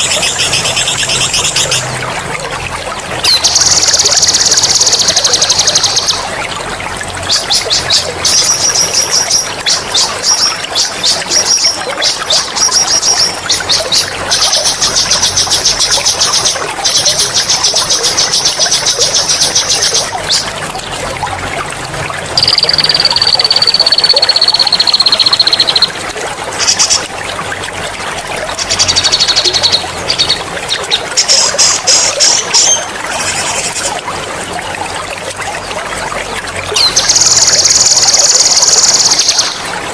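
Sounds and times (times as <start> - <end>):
running water trickling: 0.0 - 39.9
bird whistle: 22.4 - 25.9
songbird trilling: 22.4 - 25.9.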